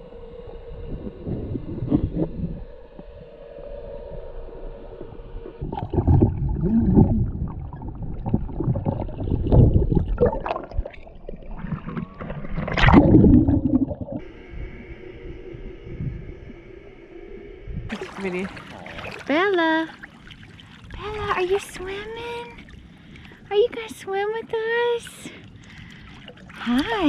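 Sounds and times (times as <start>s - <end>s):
jet ski engine humming: 0.0s - 5.7s, 14.2s - 27.0s
water sloshing and splashing: 4.9s - 14.3s, 17.9s - 27.0s.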